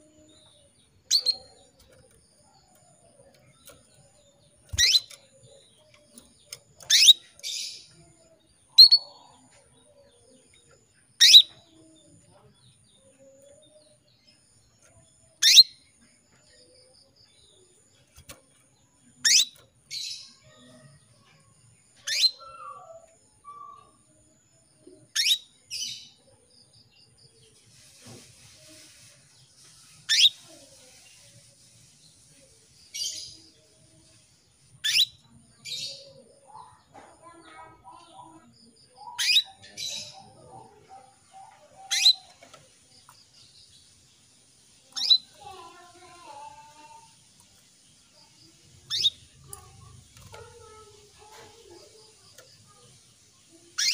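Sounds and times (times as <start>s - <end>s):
harsh bird chirp: 0.0s - 9.6s, 11.0s - 11.8s, 15.4s - 16.0s, 19.0s - 20.8s, 22.0s - 24.0s, 25.1s - 26.1s, 29.8s - 30.5s, 34.8s - 36.3s, 37.2s - 44.0s, 44.6s - 53.9s
faint birds twittering: 0.0s - 53.9s
canary calling: 4.6s - 8.0s, 11.2s - 11.7s, 15.4s - 15.8s, 34.8s - 36.2s, 39.0s - 42.6s, 44.9s - 47.1s, 48.8s - 51.9s, 53.7s - 53.9s.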